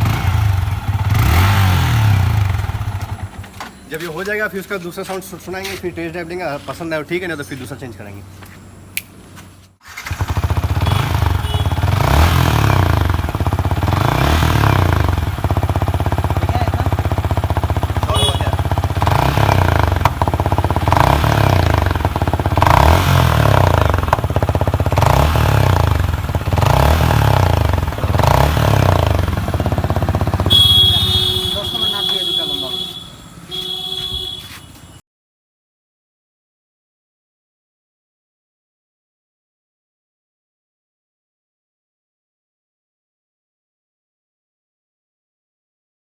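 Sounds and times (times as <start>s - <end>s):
motorcycle engine revving: 0.0s - 3.5s, 9.8s - 34.6s.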